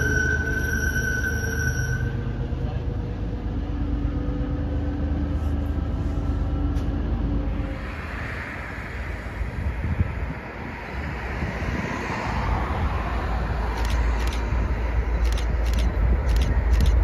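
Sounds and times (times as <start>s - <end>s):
diesel train rumbling: 0.0s - 17.0s.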